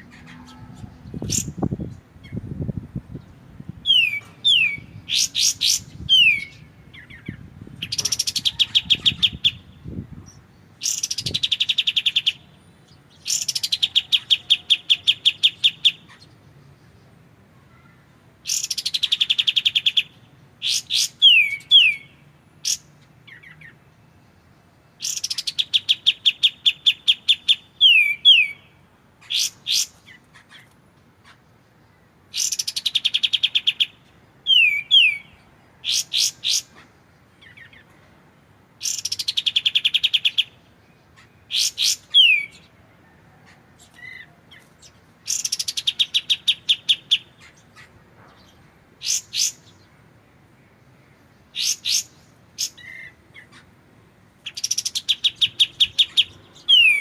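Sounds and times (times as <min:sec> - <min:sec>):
bird song trills and whistles: 0:00.0 - 0:02.4, 0:03.8 - 0:16.8, 0:18.4 - 0:30.7, 0:31.9 - 0:37.9, 0:38.8 - 0:42.8, 0:43.8 - 0:50.0, 0:51.4 - 0:53.7, 0:54.4 - 0:57.0.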